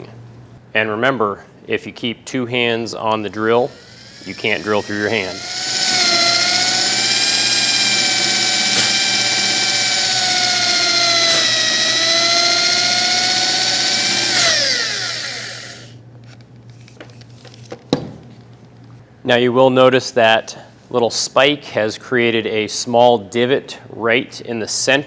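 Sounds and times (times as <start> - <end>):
electric drill boring into wood: 3.6 - 15.9.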